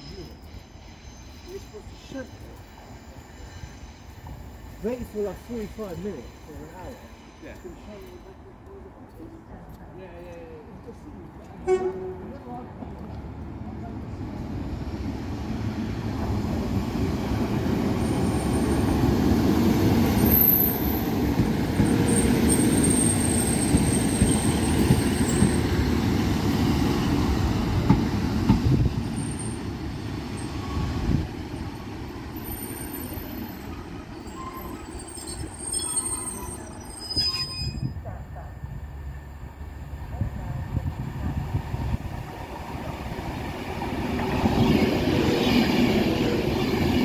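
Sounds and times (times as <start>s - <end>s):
train rumbling past: 0.0s - 47.0s
high-pitched wheel squeals: 34.1s - 38.0s.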